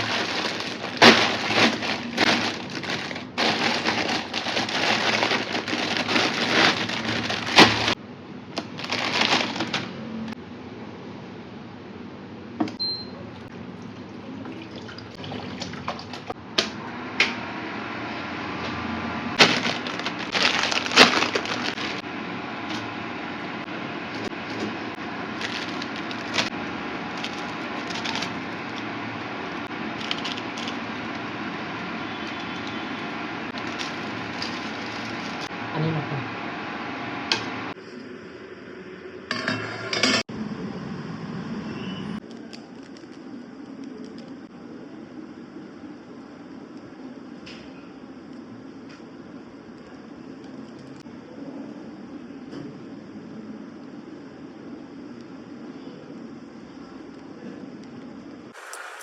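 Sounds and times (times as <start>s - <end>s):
water running: 13.3s - 16.4s, 58.6s - 59.0s.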